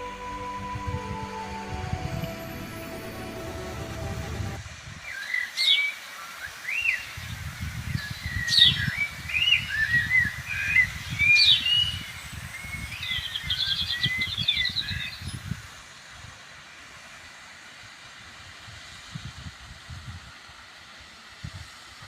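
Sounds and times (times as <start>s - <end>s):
low rumble: 0.0s - 4.8s.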